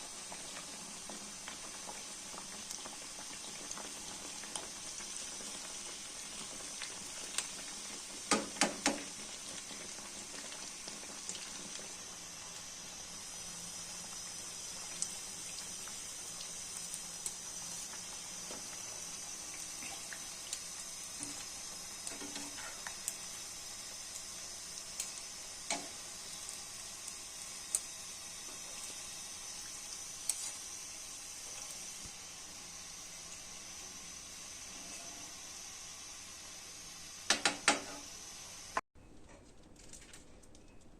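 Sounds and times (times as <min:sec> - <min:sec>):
snacks frying in hot oil: 0:00.0 - 0:38.8
oil popping and crackling: 0:00.1 - 0:12.7, 0:13.9 - 0:30.8.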